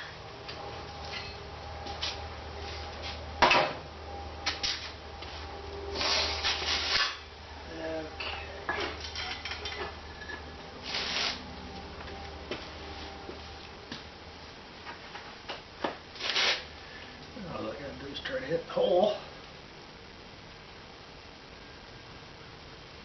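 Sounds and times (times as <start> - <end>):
steady low hum: 0.0 - 23.0
metal tools clanking and scraping: 1.0 - 1.4, 8.2 - 10.5.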